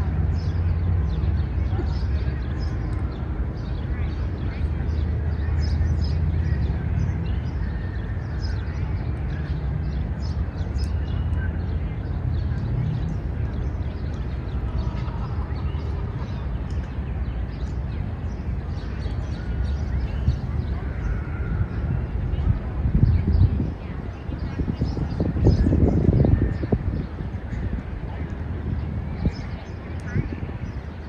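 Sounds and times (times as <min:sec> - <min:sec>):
faint distant voices: 0:00.0 - 0:31.0
low rumble of city traffic: 0:00.0 - 0:31.0
small birds chirping: 0:00.0 - 0:31.0.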